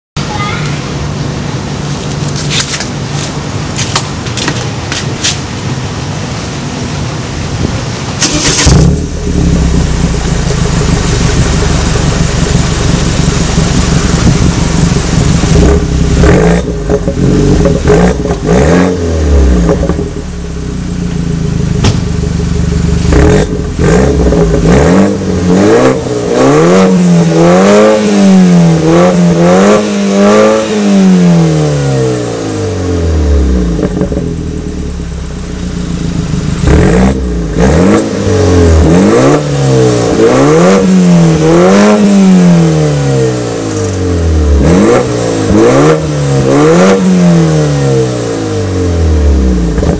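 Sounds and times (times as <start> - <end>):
car engine revving: 8.0 - 49.9.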